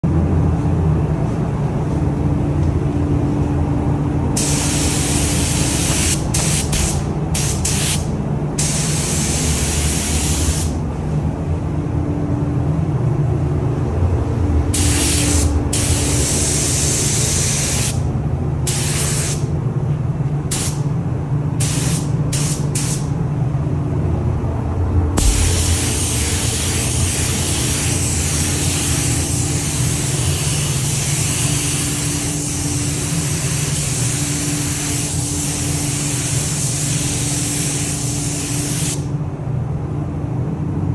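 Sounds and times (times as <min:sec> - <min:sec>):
low machinery hum: 0:00.0 - 0:40.9
paint spray gun hissing: 0:04.4 - 0:10.8, 0:14.8 - 0:18.0, 0:18.7 - 0:19.4, 0:20.5 - 0:20.8, 0:21.6 - 0:23.1, 0:25.2 - 0:39.1.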